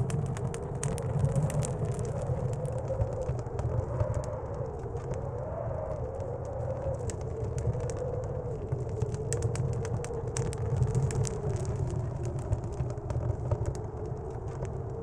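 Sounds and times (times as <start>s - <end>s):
blizzard wind rumbling: 0.0s - 15.0s
wood stove fire crackling: 0.0s - 15.0s.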